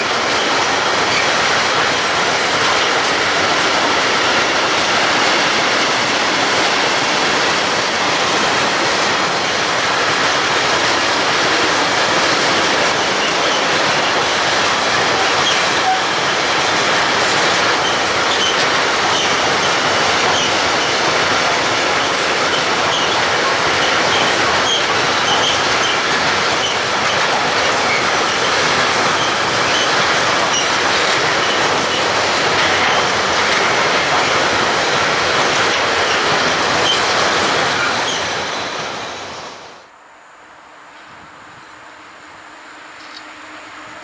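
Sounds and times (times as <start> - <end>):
train wheels on rails: 0.0 - 40.0
wheels squeaking: 12.7 - 39.0.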